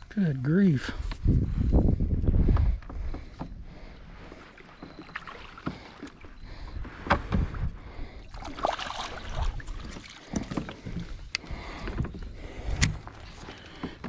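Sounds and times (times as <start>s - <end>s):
knocks and clicks against kayak hull: 2.1s - 7.7s, 9.6s - 14.0s.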